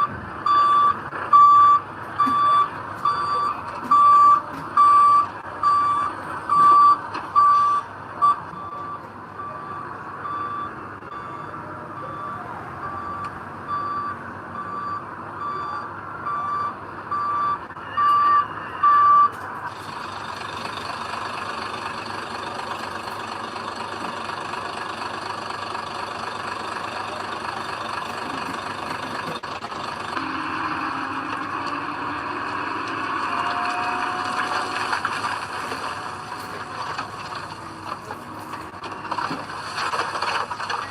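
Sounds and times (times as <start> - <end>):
reversing alarm beeping: 0.0 - 19.3
diesel engine running: 0.0 - 40.9.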